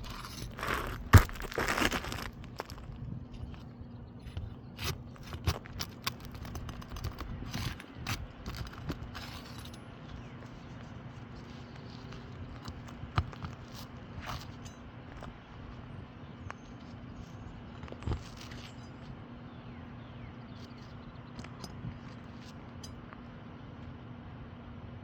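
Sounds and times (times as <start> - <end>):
tools handling roof shingles: 0.0 - 15.4.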